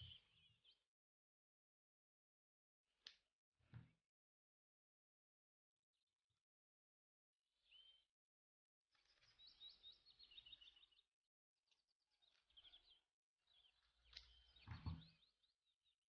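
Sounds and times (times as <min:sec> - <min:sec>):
small bird chirping: 0:00.0 - 0:00.8, 0:07.6 - 0:08.1, 0:08.9 - 0:11.1, 0:11.7 - 0:16.0.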